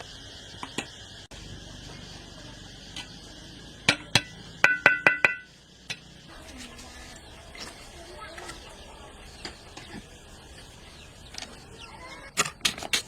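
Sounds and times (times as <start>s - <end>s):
sharp knocks on metal: 3.9s - 6.0s
taps ringing like metal pot: 3.9s - 6.0s.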